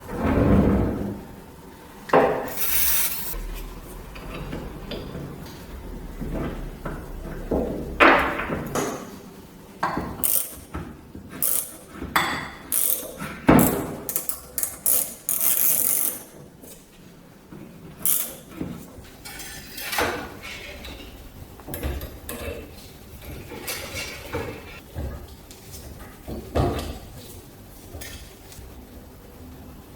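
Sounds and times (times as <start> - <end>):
metal scraping: 2.4 - 5.8
metal clinking and rubbing: 2.5 - 3.4.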